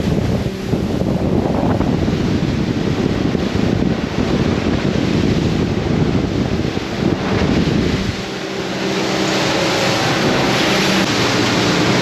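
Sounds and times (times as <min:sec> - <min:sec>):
water rushing past boat hull: 0:00.0 - 0:12.0
wind buffeting microphone: 0:00.0 - 0:12.0.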